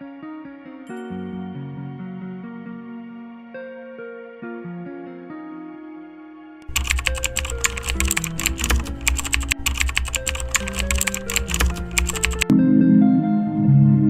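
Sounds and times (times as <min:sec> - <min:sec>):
fast keyboard typing: 0:06.6 - 0:12.5.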